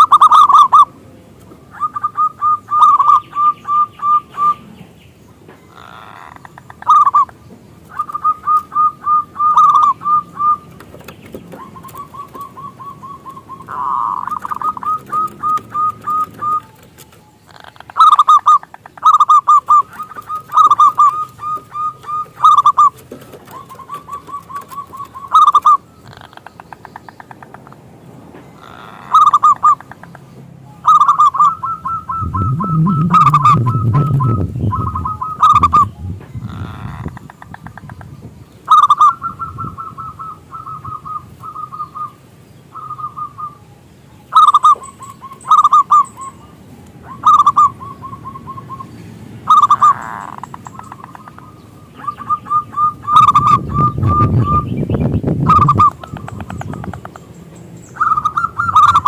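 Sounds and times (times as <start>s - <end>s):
dove cooing: 0.0s - 1.0s, 1.7s - 4.8s, 5.7s - 26.5s, 28.6s - 30.0s, 30.7s - 37.9s, 38.7s - 57.2s, 58.0s - 59.0s
low rumble: 32.1s - 36.8s.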